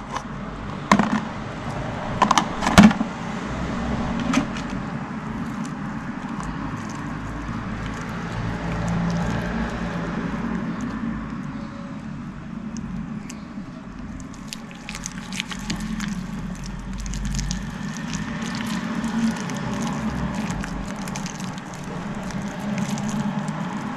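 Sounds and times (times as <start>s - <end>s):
slime squishing: 4.5s - 23.9s.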